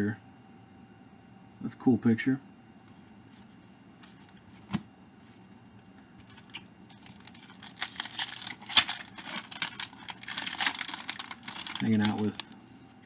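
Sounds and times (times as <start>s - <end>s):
crinkling wrapper being opened: 6.2s - 12.6s.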